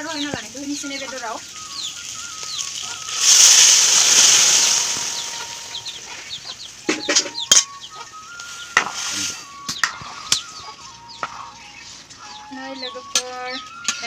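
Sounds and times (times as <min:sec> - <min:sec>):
food sizzling in hot pan: 0:00.0 - 0:06.8.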